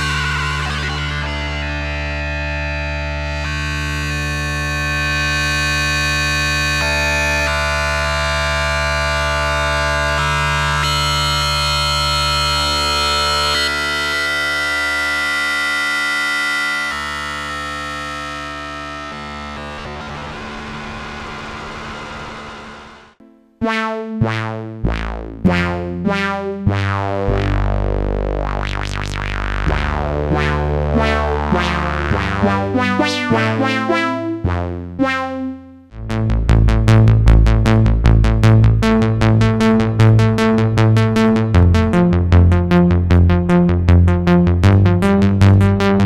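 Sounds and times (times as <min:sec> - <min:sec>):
synthesizer pad chords: 0:00.0 - 0:46.0.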